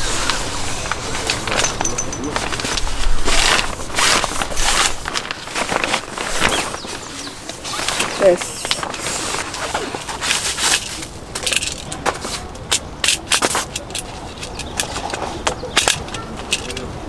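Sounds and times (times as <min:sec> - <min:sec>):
fabric rustling: 0:00.0 - 0:12.6
camp cot frame clicks and knocks: 0:00.2 - 0:17.0.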